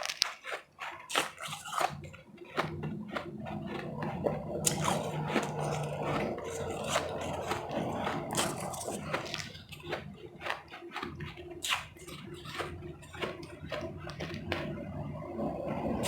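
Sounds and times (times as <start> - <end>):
ice chips crunched and chewed: 0.0 - 14.7
steady low hum: 2.6 - 10.6, 12.0 - 16.0.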